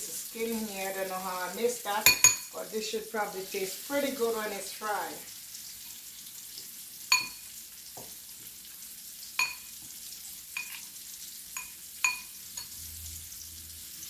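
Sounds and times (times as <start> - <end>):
chicken sizzling in hot oil: 0.0 - 14.0
metal utensil clinking on pan: 2.0 - 2.6, 7.1 - 7.5, 9.4 - 9.7, 10.6 - 10.9, 11.6 - 12.8.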